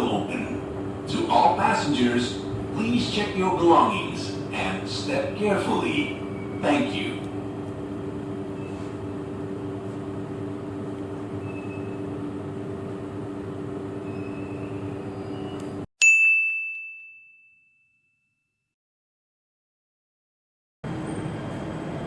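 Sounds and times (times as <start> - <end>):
train cabin hum: 0.0 - 11.4
high bell-like ding: 16.0 - 18.5.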